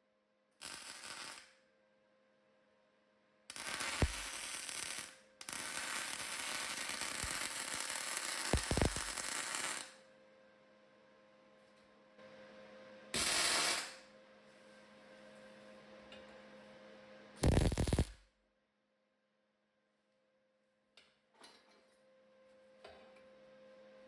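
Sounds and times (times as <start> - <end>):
welding arc crackling: 0.6 - 1.5, 3.5 - 9.9, 17.4 - 18.2
steady electrical hum: 11.7 - 18.2.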